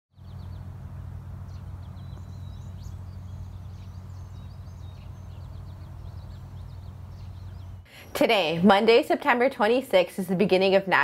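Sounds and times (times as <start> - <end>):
small birds chirping: 0.1 - 9.8
low rumble: 0.2 - 7.8.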